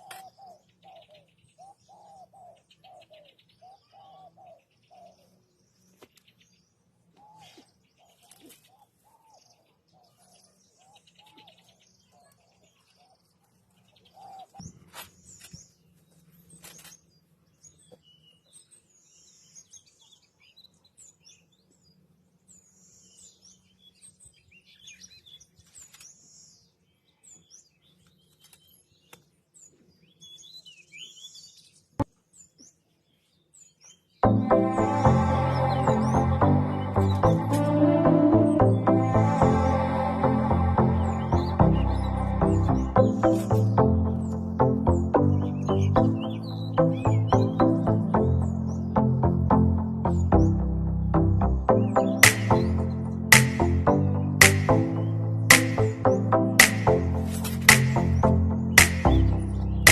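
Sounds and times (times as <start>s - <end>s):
birds chirping and calling: 0.0s - 21.8s, 22.4s - 59.9s
low bird call: 34.2s - 49.2s
sharp click: 52.2s - 52.7s, 54.4s - 54.7s, 56.6s - 58.2s, 58.8s - 59.2s.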